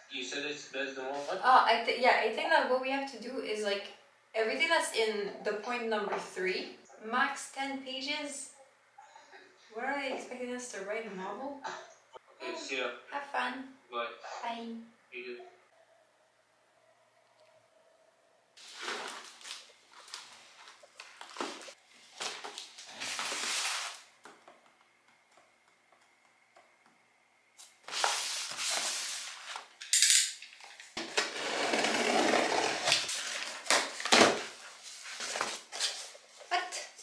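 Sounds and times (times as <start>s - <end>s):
cardboard boxes rustling and scraping: 18.6s - 24.0s, 27.8s - 29.7s, 31.0s - 36.4s.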